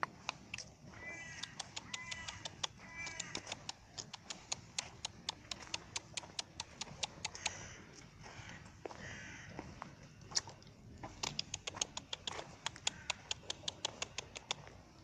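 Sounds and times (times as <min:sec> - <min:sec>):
sharp clicks: 0:00.0 - 0:07.6, 0:11.1 - 0:14.8
animal calling: 0:00.0 - 0:10.0, 0:11.1 - 0:14.7.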